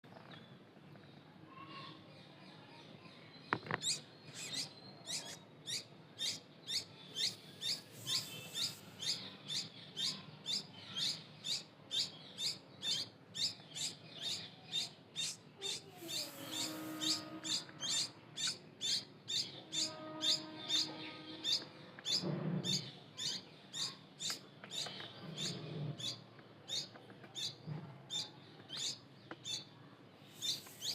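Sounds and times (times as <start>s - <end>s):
small birds chirping: 0.1s - 30.9s
lower longer bird calls: 3.8s - 21.6s.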